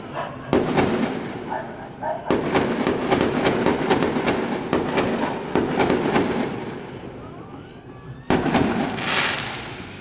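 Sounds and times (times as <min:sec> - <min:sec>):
fireworks crackling pops: 0:08.3 - 0:10.0
loud firework bang: 0:08.3 - 0:10.0.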